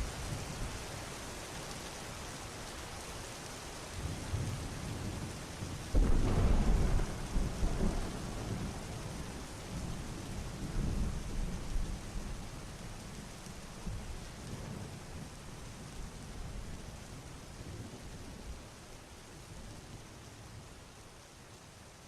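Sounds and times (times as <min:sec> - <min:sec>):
steady rain falling: 0:00.0 - 0:22.0
thunder rumbling: 0:05.9 - 0:12.5.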